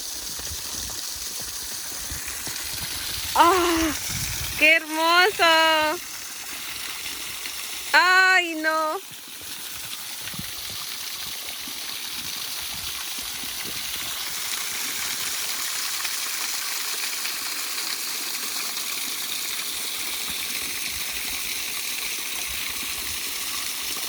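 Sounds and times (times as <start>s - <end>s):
waterfall rushing: 3.2s - 6.1s.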